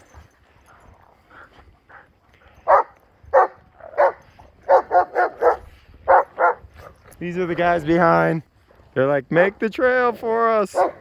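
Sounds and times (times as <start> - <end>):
dog barking: 2.7 - 6.6, 10.8 - 11.0.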